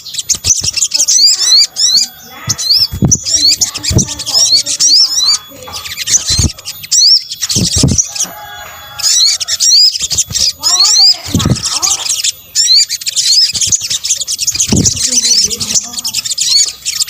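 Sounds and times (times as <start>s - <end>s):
bird chirps and trills: 0.0s - 17.0s
low thumps: 2.5s - 8.3s, 9.9s - 12.1s, 14.5s - 15.8s.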